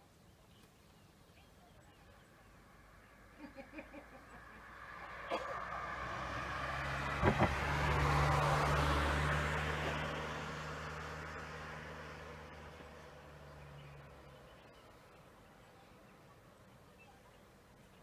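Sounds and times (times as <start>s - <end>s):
car driving past: 4.0s - 15.2s.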